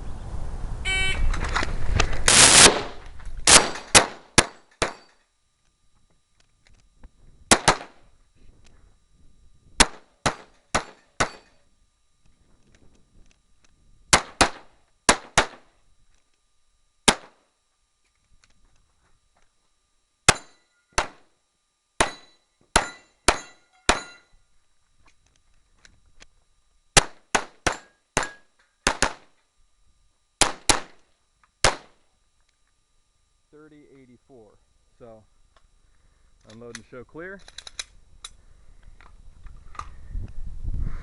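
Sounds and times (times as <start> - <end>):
pistol shots: 2.3 - 5.1, 7.5 - 8.0, 9.8 - 11.4, 14.1 - 15.7, 17.1 - 17.4, 20.3 - 21.2, 27.0 - 29.3, 30.4 - 31.0, 31.6 - 32.0
metallic ring of steel targets: 3.5 - 5.3, 9.9 - 11.7, 20.3 - 21.2, 22.0 - 24.4, 27.6 - 28.8.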